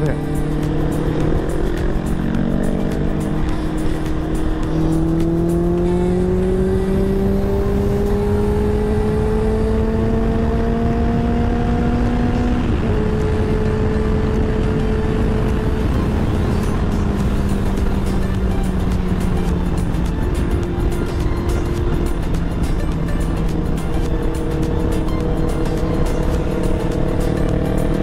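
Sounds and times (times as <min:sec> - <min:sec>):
motorcycle engine accelerating: 0:00.0 - 0:28.0
wind rumble on microphone: 0:03.0 - 0:19.2.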